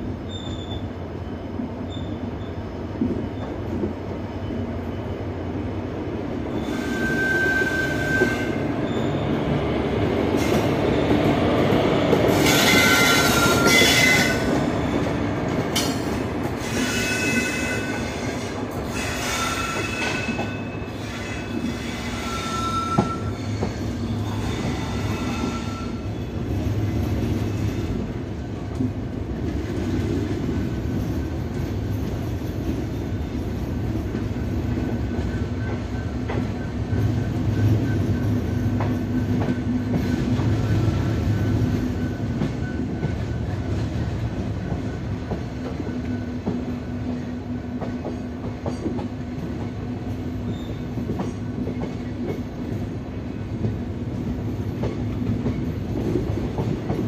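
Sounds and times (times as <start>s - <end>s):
train wheels rumbling on rails: 0.0s - 57.0s
clacks over rail joints: 47.7s - 52.5s.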